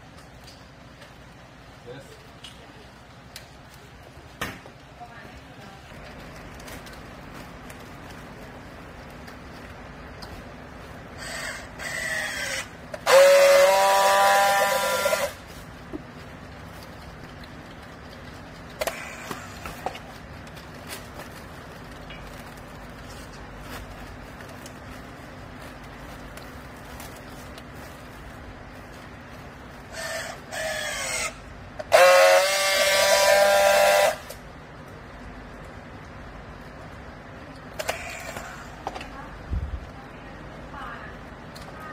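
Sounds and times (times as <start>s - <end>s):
hydraulic whine: 11.2s - 15.4s, 29.9s - 34.4s
hydraulic baler running: 11.2s - 15.6s
steady horn-like tone: 13.0s - 15.4s.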